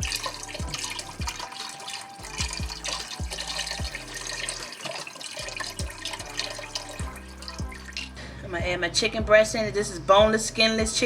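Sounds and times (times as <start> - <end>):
broth pouring into pot: 0.0 - 8.3
music with deep bass beat: 0.0 - 11.0.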